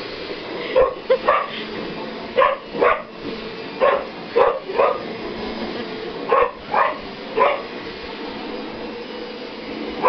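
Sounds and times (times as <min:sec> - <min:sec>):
vacuum cleaner humming: 0:00.0 - 0:10.0
puppy barking: 0:00.8 - 0:01.6, 0:02.4 - 0:03.2, 0:03.8 - 0:05.1, 0:06.3 - 0:07.7.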